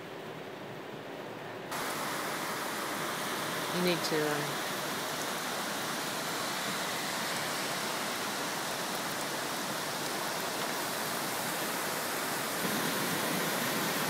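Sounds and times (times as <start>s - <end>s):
torrential rain: 0.0s - 14.0s
rushing floodwater: 1.7s - 14.0s.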